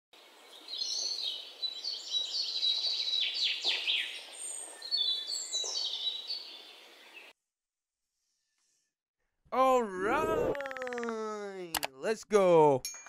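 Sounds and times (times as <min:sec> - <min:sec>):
birds chirping and singing: 0:00.2 - 0:07.3.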